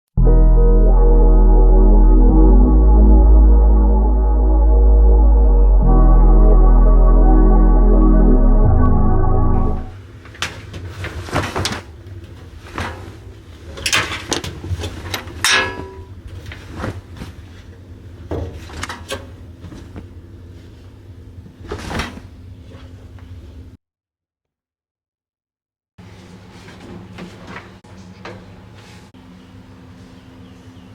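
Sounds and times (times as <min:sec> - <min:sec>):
steady low hum: 0:00.2 - 0:10.0.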